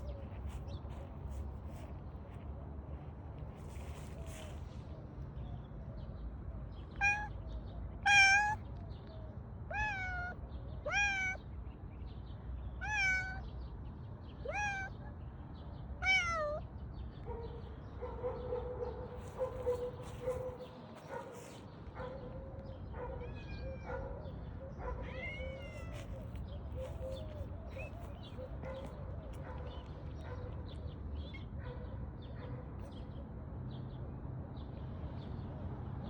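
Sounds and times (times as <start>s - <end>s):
cat meowing: 7.0s - 7.3s, 8.0s - 8.6s, 9.7s - 11.4s, 12.8s - 13.4s, 14.4s - 14.9s, 16.0s - 16.6s, 23.2s - 24.0s, 25.0s - 26.4s.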